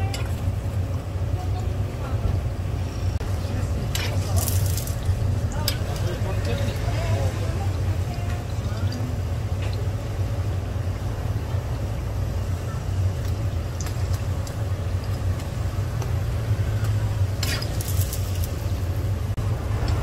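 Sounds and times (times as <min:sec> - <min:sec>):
steady low rumble: 0:00.0 - 0:20.0
pancakes sizzling in oil: 0:12.8 - 0:19.0.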